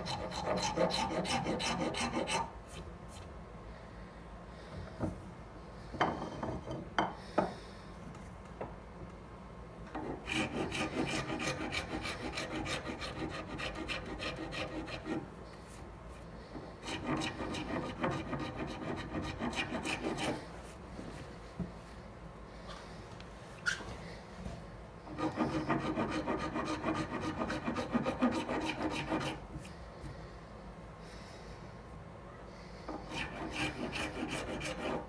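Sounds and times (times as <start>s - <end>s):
hand file rasping on handle: 0.0s - 2.5s, 10.2s - 15.2s, 16.8s - 20.4s, 25.1s - 29.4s, 33.0s - 35.0s.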